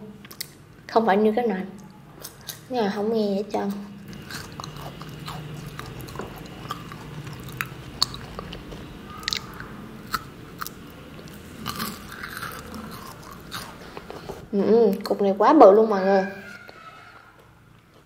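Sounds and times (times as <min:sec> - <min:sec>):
person biting and chewing: 0:04.0 - 0:15.2.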